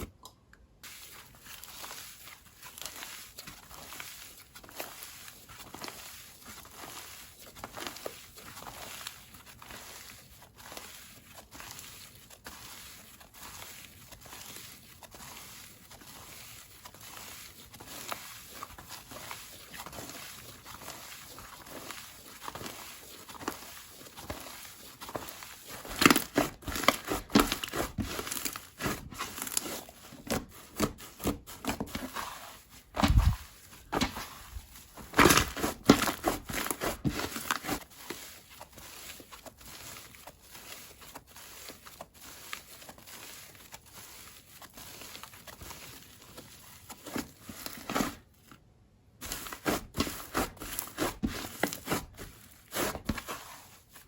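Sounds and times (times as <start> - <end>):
slime crackling and popping: 16.9 - 32.3.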